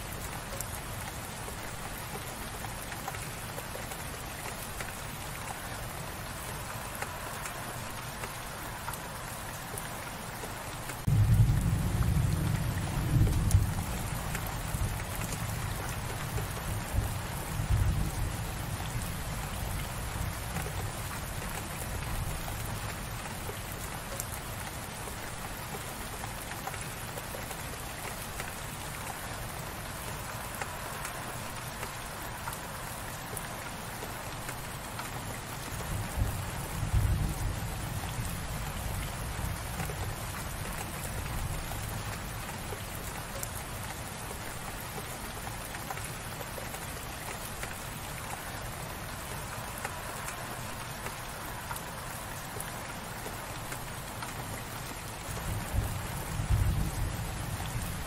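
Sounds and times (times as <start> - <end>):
light rain falling: 0.0 - 58.0.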